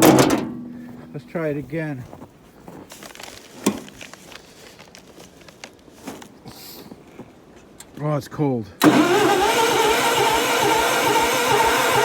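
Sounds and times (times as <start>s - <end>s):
light clicks and rustling: 2.9s - 6.4s.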